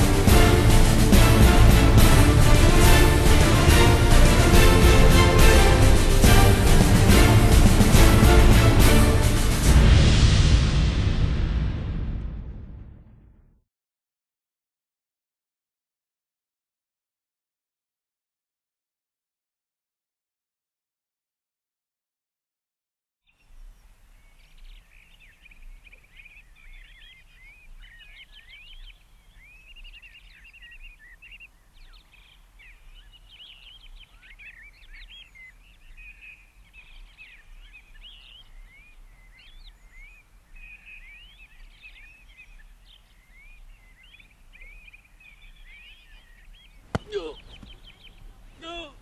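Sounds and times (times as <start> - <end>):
small birds chirping and twittering: 23.2 - 49.0.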